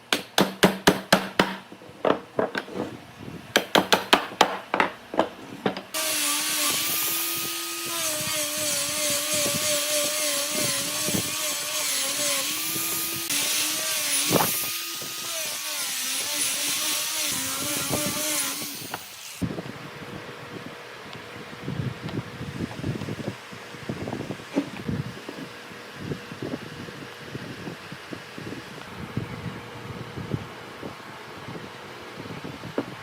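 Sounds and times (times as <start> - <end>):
power tool working wood: 6.0 - 19.5.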